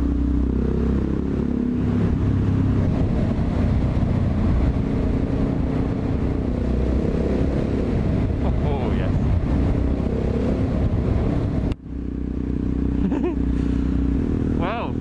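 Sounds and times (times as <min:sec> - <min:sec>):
motorcycle engine revving: 0:00.0 - 0:15.0
wind and road noise: 0:00.0 - 0:15.0.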